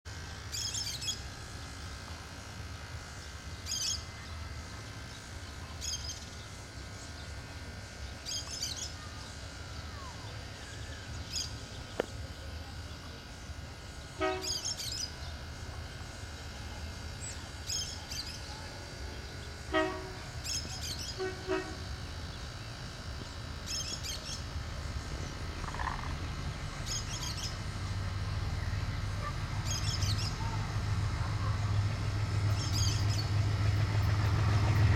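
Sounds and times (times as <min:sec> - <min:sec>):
steady low rumble: 0:18.8 - 0:34.9
small bird chirping: 0:26.8 - 0:27.6, 0:29.6 - 0:30.5, 0:32.5 - 0:33.4.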